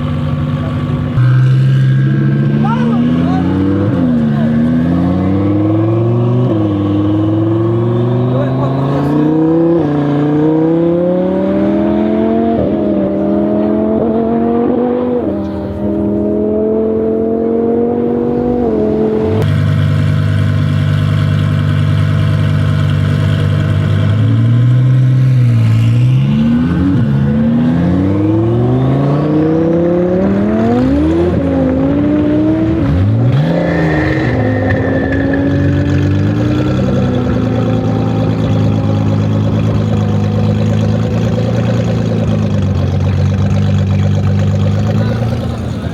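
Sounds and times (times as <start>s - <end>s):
car engine revving: 0.0s - 45.9s.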